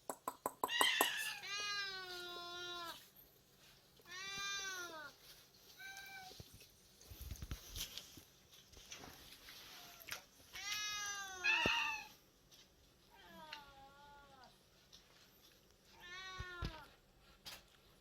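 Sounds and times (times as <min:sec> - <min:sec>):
cat meowing: 0:00.7 - 0:03.0, 0:09.8 - 0:12.2, 0:15.9 - 0:16.9.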